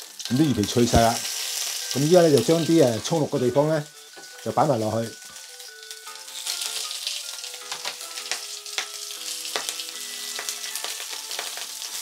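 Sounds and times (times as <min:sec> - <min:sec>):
fish sizzling in a frying pan: 0:00.0 - 0:12.0
metal tongs clicking on pan: 0:07.7 - 0:11.7.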